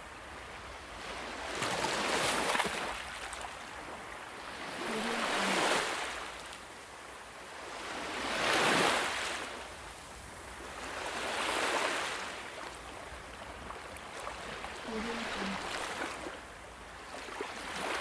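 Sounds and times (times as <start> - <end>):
ocean waves washing in: 4.2 - 6.4, 14.1 - 18.0.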